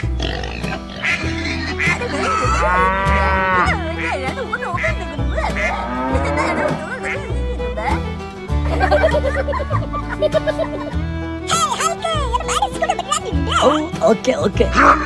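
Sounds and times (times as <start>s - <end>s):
background music with bass line: 0.0s - 15.0s
cow mooing: 0.2s - 3.8s, 5.6s - 6.9s.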